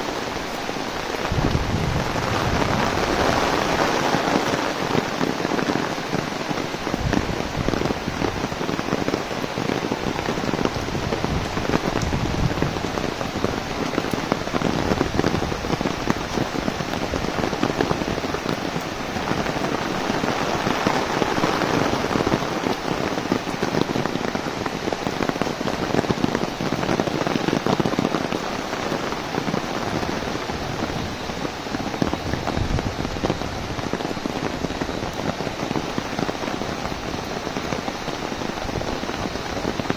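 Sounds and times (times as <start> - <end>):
heavy rain on an umbrella: 0.0 - 39.9.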